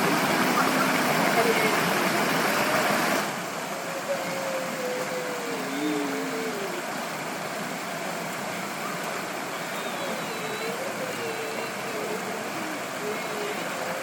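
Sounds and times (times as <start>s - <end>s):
mountain stream rushing: 0.0s - 14.0s
faint distant voices: 8.8s - 14.0s.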